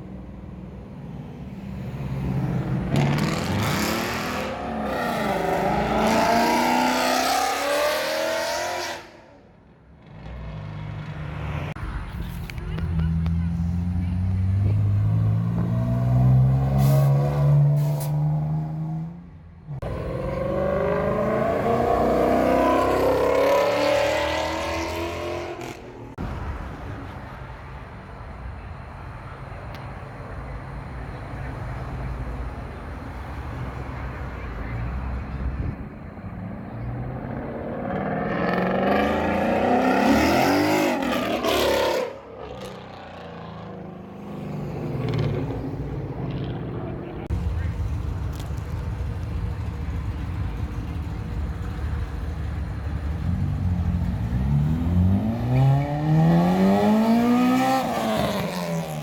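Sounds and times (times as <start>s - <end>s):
car accelerating hard: 2.6s - 9.3s, 19.8s - 25.8s, 36.5s - 47.3s, 53.3s - 59.0s.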